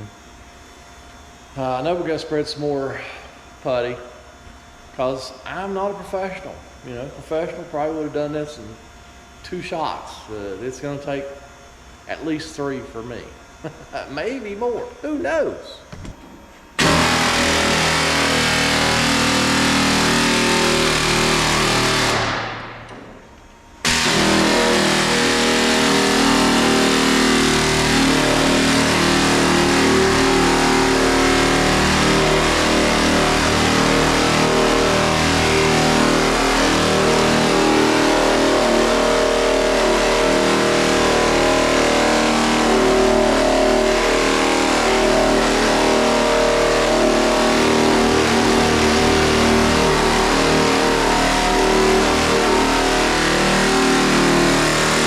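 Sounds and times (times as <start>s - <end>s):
power sander sanding: 16.8s - 22.6s, 23.8s - 55.0s.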